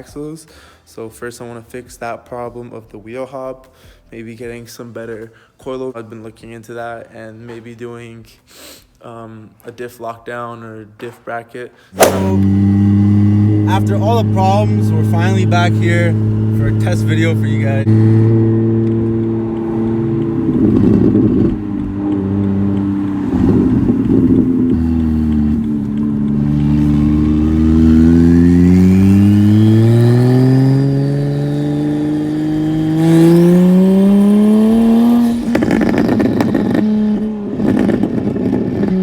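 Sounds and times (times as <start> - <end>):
car engine accelerating: 12.0 - 39.0.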